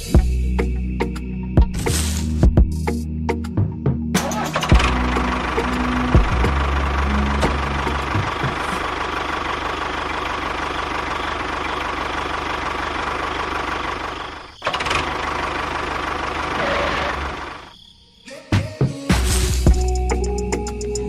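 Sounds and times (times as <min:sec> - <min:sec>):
small motor rattling: 0:04.6 - 0:17.6.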